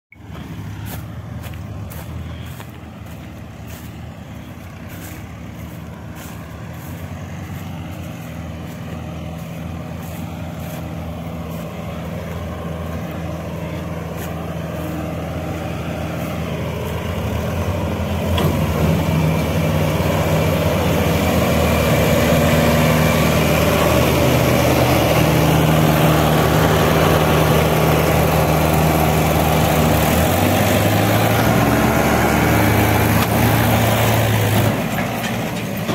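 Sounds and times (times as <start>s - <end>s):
tractor engine running: 0.1s - 35.9s.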